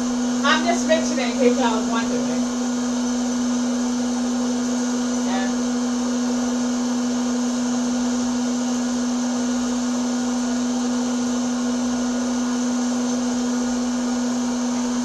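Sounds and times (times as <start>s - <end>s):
popcorn maker motor whirring: 0.0s - 15.0s.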